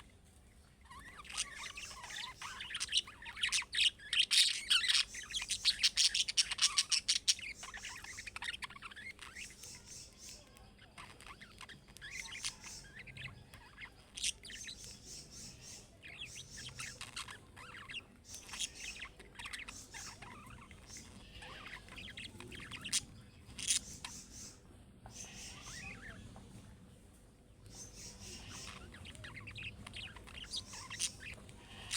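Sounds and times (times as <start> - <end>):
budgerigars chattering: 0.9 - 26.2, 27.7 - 31.9.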